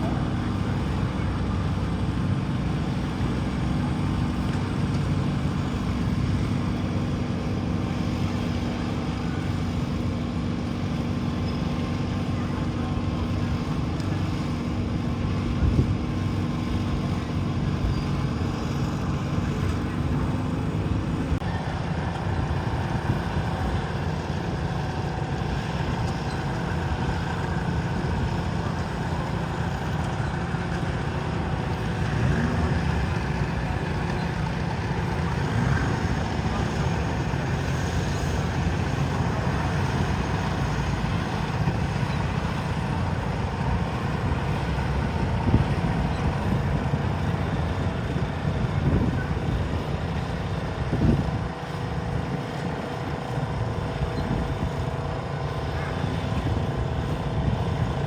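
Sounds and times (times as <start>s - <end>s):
tractor engine running steadily: 0.0s - 58.0s.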